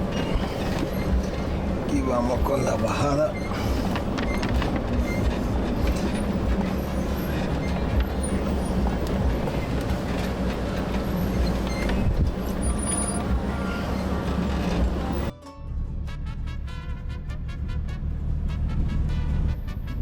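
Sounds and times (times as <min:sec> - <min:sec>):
truck engine running low: 0:00.0 - 0:15.3.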